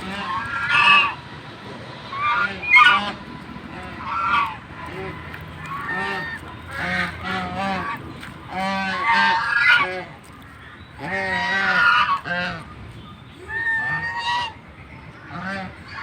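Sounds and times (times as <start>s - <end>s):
geese honking: 0.0s - 1.3s, 2.0s - 12.7s.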